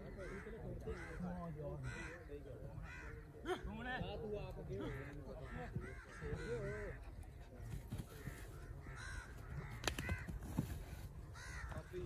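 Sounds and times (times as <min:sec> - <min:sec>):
birds cawing: 0:00.0 - 0:03.8, 0:04.7 - 0:07.0, 0:08.1 - 0:12.0.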